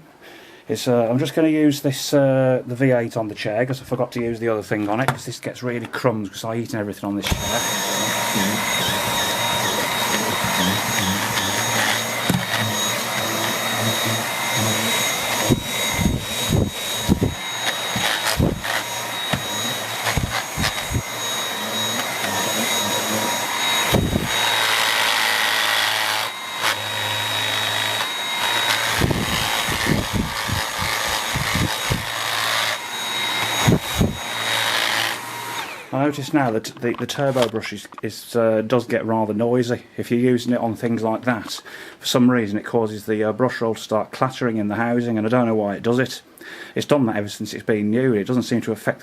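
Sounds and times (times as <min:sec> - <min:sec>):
vacuum cleaner high whine: 0:07.2 - 0:36.5.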